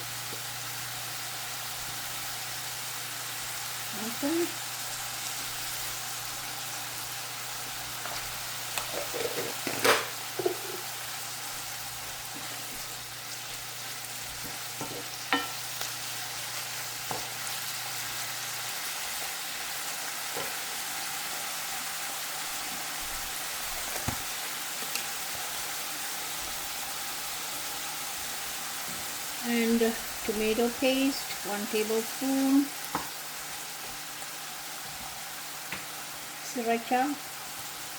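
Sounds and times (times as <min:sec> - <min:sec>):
food sizzling in oil: 0:00.0 - 0:37.9.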